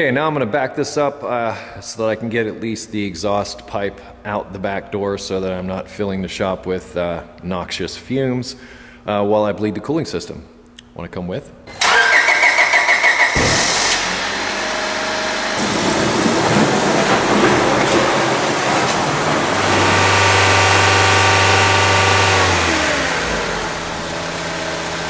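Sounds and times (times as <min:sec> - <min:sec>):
car engine cranking and running: 0:11.7 - 0:25.0
engine revving: 0:11.8 - 0:25.0.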